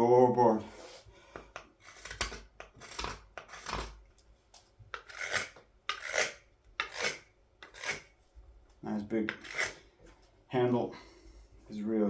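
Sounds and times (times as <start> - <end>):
blade shaving green wood: 1.4 - 4.0, 4.9 - 8.1, 9.2 - 9.8.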